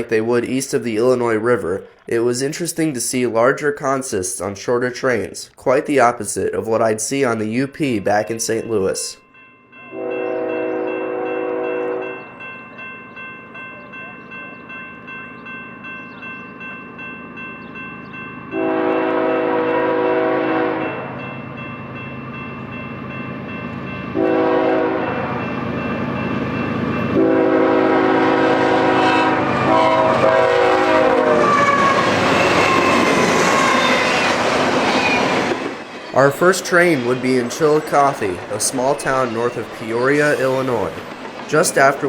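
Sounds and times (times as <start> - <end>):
train passing by: 5.0 - 42.0
locomotive air horn: 9.9 - 12.2, 18.5 - 21.1, 24.1 - 25.5, 27.1 - 34.1.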